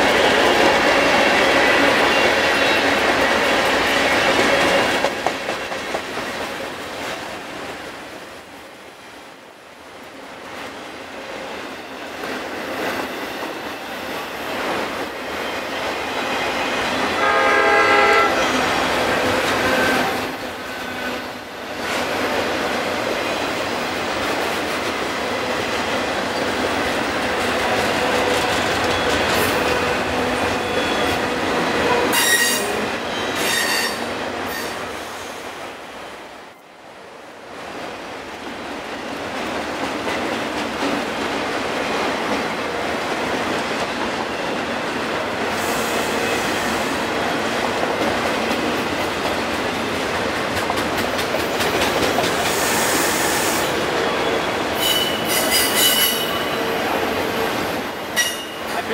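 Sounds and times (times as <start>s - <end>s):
freight train rolling past: 0.0s - 58.9s
high-pitched wheel squeals: 32.1s - 34.8s, 54.1s - 56.6s.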